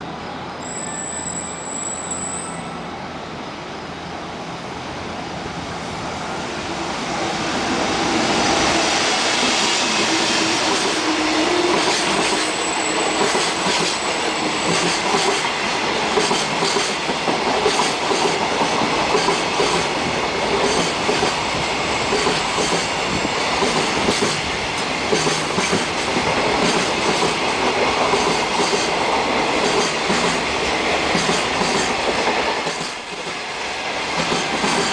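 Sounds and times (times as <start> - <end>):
freight train rumbling past: 0.0 - 34.9.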